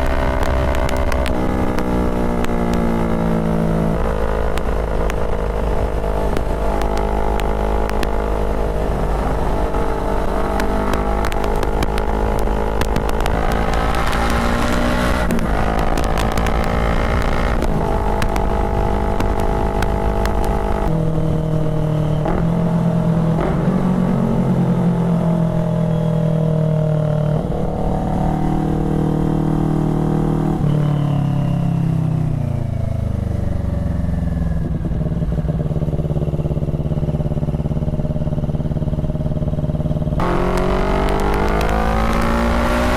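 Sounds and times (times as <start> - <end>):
motorcycle engine running: 0.0 - 30.3, 32.5 - 42.9.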